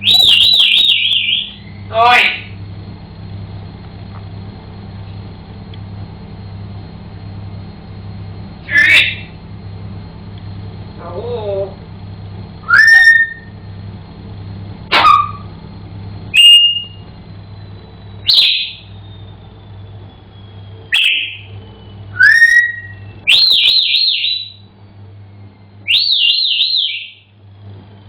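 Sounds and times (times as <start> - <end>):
parrot whistling: 0.0 - 2.4, 12.6 - 13.6, 14.9 - 15.5, 16.3 - 17.0, 18.2 - 19.3, 20.9 - 21.5, 22.1 - 24.6, 25.8 - 27.2.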